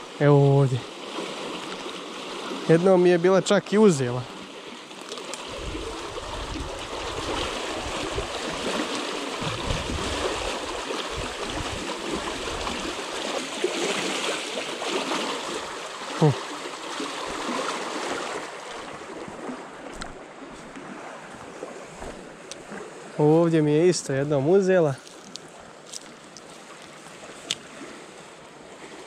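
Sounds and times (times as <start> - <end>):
river rushing: 0.0 - 29.0
wind buffeting microphone: 5.5 - 8.6, 9.4 - 12.9.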